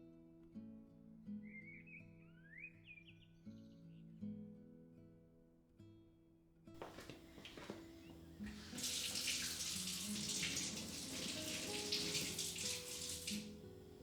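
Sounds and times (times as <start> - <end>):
tap running into sink: 6.8 - 13.6.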